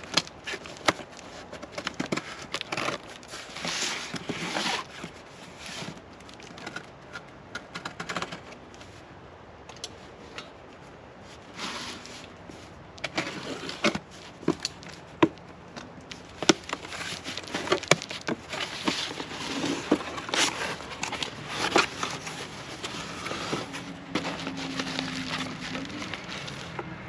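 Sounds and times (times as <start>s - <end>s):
packaging crinkling: 13.0s - 27.0s.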